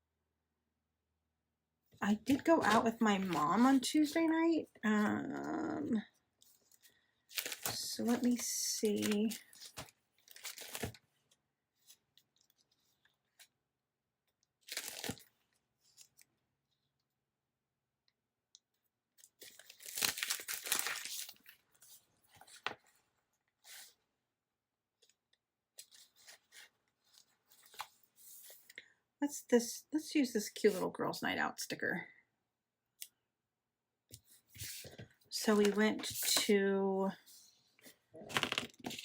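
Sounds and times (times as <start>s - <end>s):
paper rustling: 2.3s - 4.2s, 6.5s - 11.0s, 19.2s - 23.0s, 25.8s - 28.7s, 38.3s - 39.0s.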